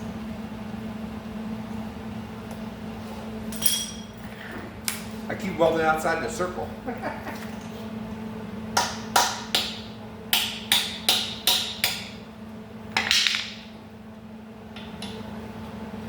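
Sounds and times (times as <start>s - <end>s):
steady low hum: 0.0s - 16.0s
hammer striking metal: 8.8s - 12.2s.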